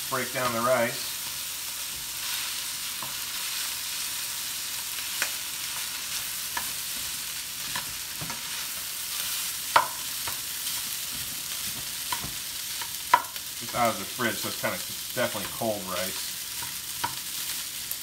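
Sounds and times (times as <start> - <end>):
food sizzling in a pan: 0.0 - 18.0
spatula stirring food: 1.2 - 17.9
spatula tapping a pan: 9.7 - 13.8, 16.2 - 17.3.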